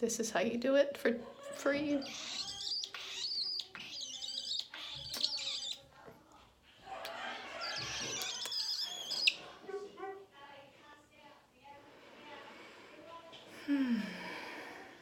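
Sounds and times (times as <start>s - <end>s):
pet bird chattering and warbling: 1.8s - 5.9s, 7.1s - 9.5s.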